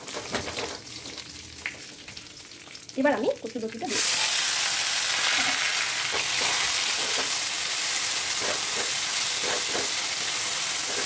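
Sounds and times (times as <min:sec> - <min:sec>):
food sizzling in hot oil: 0:00.0 - 0:11.0
wooden spatula scraping pan: 0:08.3 - 0:11.0.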